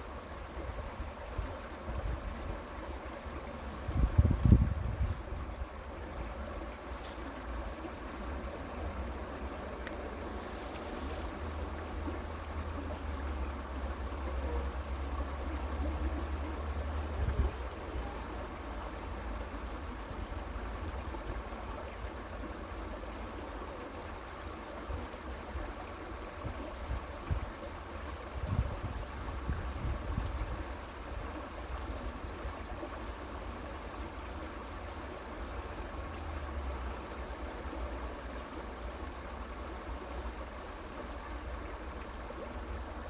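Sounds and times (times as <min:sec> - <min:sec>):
creek water flowing: 0:00.0 - 0:43.0.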